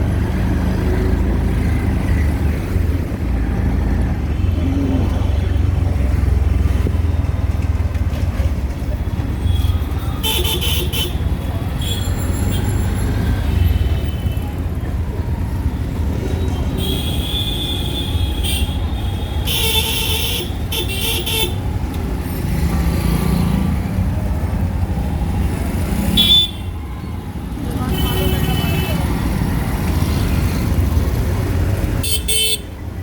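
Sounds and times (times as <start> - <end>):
auto-rickshaw engine rumbling: 0.0 - 33.0
vehicle horns honking: 26.1 - 27.0, 32.0 - 32.7.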